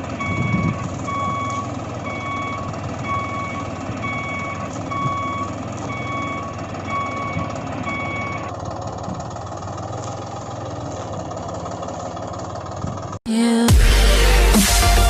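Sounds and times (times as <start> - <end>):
engine rumble: 0.0 - 15.0
electronic reversing beeper: 0.2 - 8.5.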